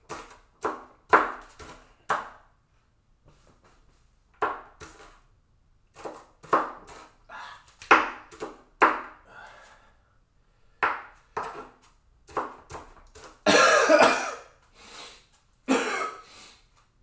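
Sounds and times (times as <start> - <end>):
knife chopping onion on board: 0.0 - 2.4, 4.4 - 5.2, 5.9 - 7.2, 7.8 - 9.2, 10.8 - 13.4.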